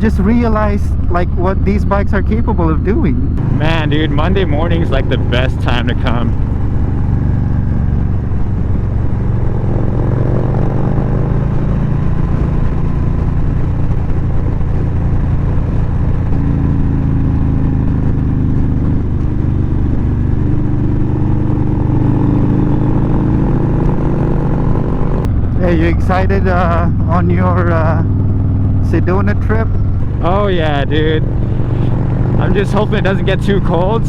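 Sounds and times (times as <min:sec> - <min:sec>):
motorcycle engine running: 0:00.0 - 0:34.0
rushing air: 0:29.5 - 0:32.7.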